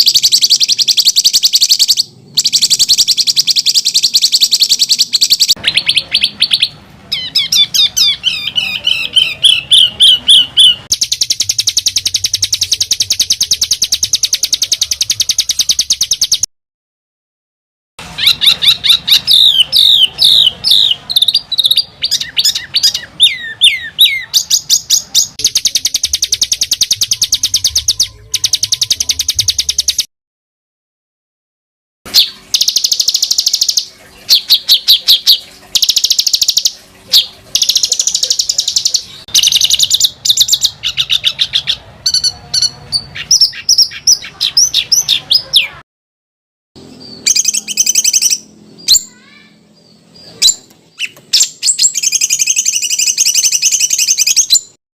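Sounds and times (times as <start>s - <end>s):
songbird trills: 0.0s - 16.5s, 46.8s - 54.8s.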